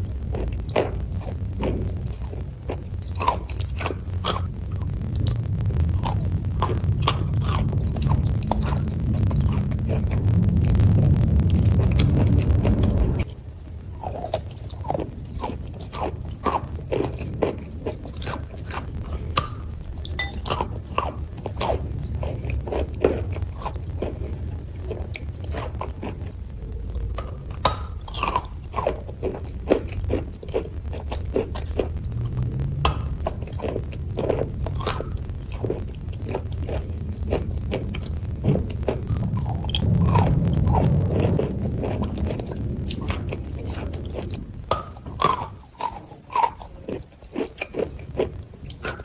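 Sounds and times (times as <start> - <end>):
low steady hum: 0.0 - 49.0
person chewing crunchy food: 0.0 - 49.0.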